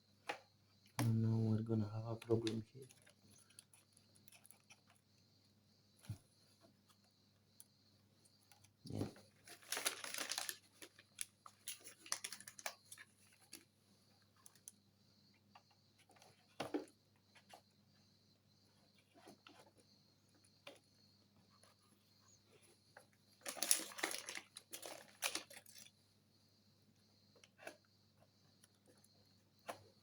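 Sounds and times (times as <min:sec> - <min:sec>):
small parts clicking and tapping: 0:09.5 - 0:13.7, 0:23.4 - 0:25.9.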